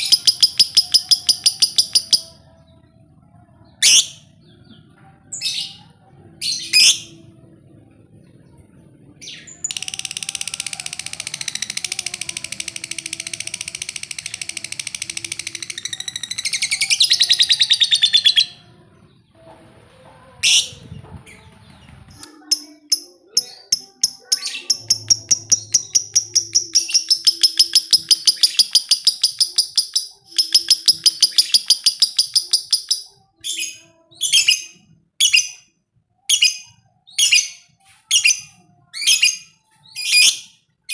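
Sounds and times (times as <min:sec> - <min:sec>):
lovebird chattering trills: 0:00.0 - 0:02.4, 0:22.2 - 0:34.7.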